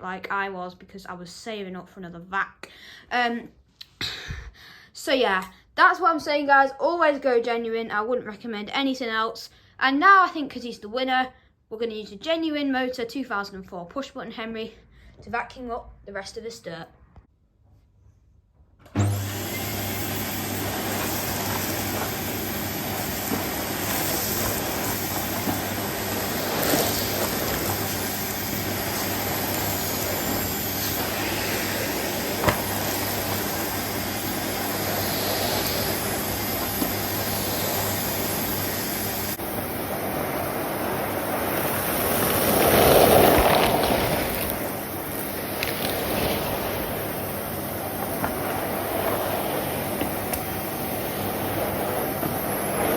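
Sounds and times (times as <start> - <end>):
vacuum cleaner running: 18.8 - 52.9.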